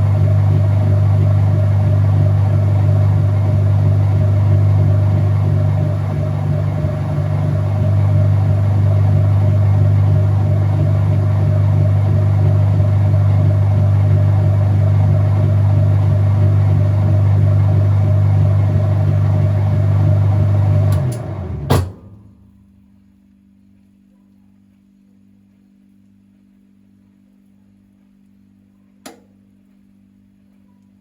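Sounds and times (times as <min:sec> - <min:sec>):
washing machine spin drone: 0:00.0 - 0:23.5
washing machine clunk: 0:20.9 - 0:22.2.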